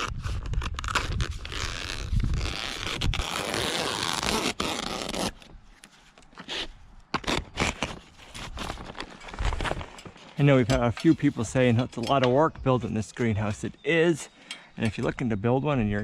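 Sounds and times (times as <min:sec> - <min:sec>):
blade slicing plastic film: 0:07.2 - 0:10.2.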